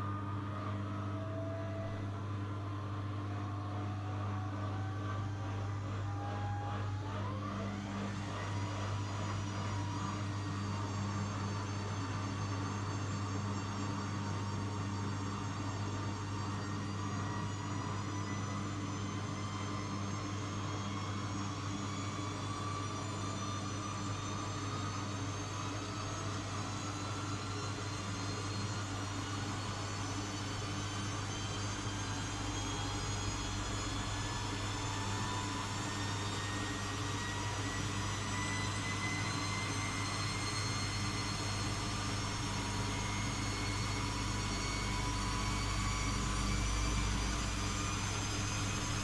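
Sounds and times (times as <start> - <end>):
washing machine drum motor whine: 0.0 - 49.0
constant low hum: 14.2 - 49.0.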